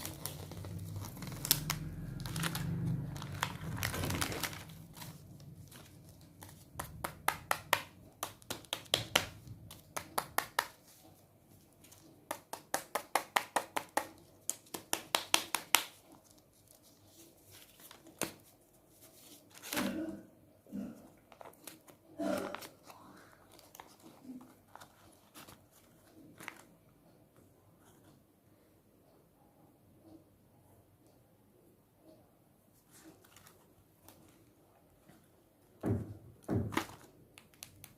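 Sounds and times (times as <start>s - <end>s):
wrappers crinkling: 0.0s - 6.9s.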